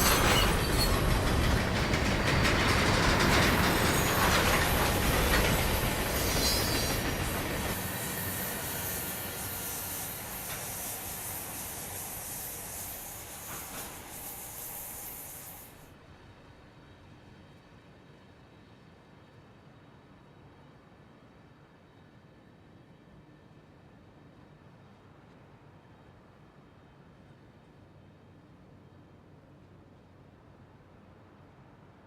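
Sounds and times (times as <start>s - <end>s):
high wheel squeal: 0.0s - 1.4s, 3.6s - 15.8s
train rumbling past: 0.0s - 17.6s.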